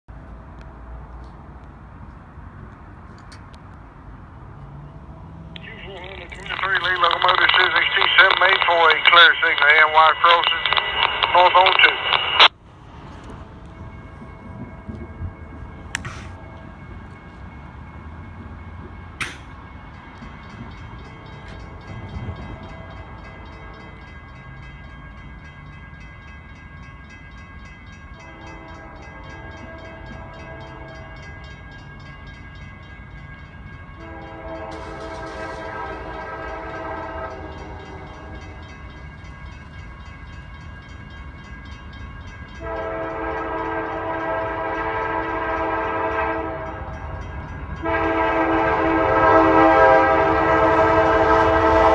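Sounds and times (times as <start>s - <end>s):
train rumbling: 0.1s - 51.9s
sharp click: 16.0s - 16.3s
locomotive air horn blasts: 28.2s - 31.2s, 34.0s - 38.7s, 42.6s - 46.9s, 47.8s - 51.9s.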